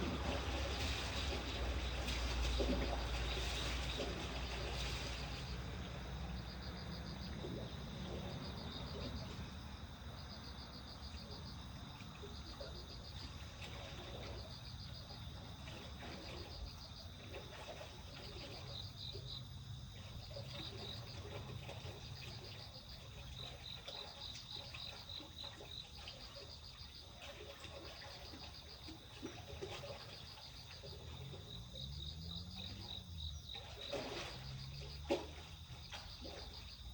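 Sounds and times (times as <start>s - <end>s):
low steady rumble: 0.0s - 24.1s, 28.9s - 36.9s.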